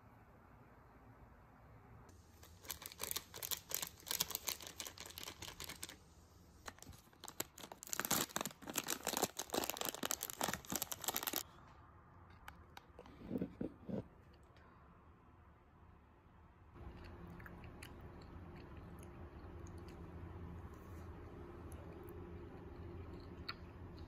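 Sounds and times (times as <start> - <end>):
plastic wrapper crinkling: 2.4 - 6.0, 6.7 - 11.4.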